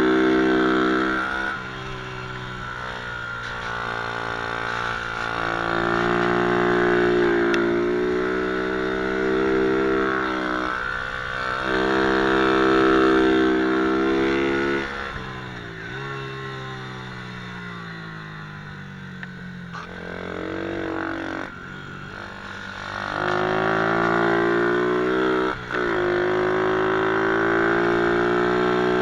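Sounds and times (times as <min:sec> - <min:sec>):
pit bike engine revving: 0:00.0 - 0:29.0.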